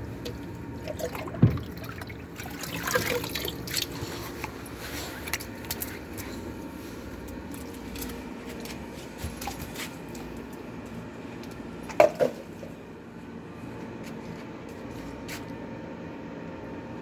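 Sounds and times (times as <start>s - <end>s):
toy washing machine churning: 0.0s - 6.3s.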